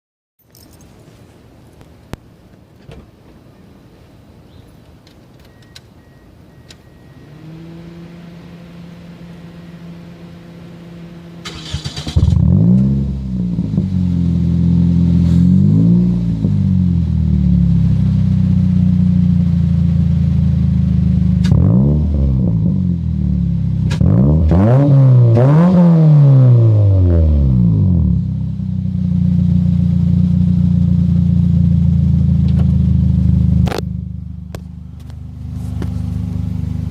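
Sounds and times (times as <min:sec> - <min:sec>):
car engine idling and revving: 0:06.0 - 0:36.9
car engine cranking: 0:11.4 - 0:13.1
low steady hum: 0:27.3 - 0:36.9.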